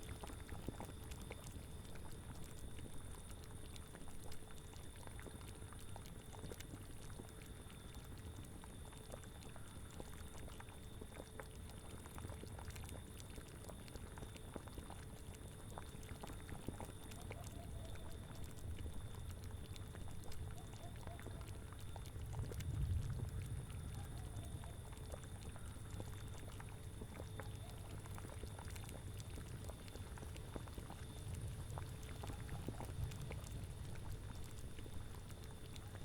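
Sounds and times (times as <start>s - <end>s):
cauldron bubbling and popping: 0.0s - 36.0s
low wind rumble: 22.1s - 25.8s.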